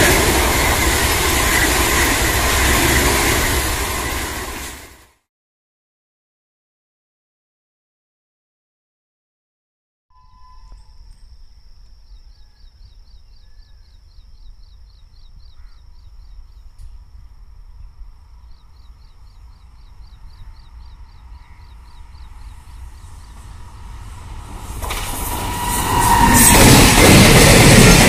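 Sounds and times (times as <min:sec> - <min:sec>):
electric locomotive approaching: 0:00.0 - 0:05.1, 0:10.2 - 0:28.0
faint high steady tone: 0:10.1 - 0:22.9.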